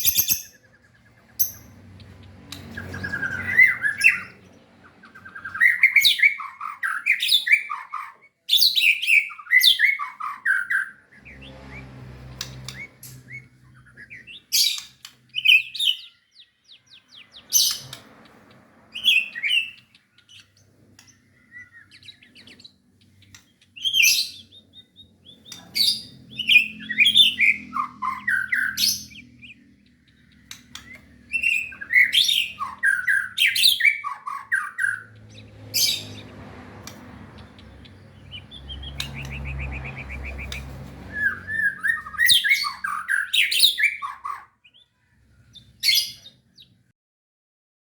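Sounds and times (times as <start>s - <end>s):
bird singing whistled phrases: 23.8s - 29.6s, 30.3s - 35.1s, 37.6s - 44.4s.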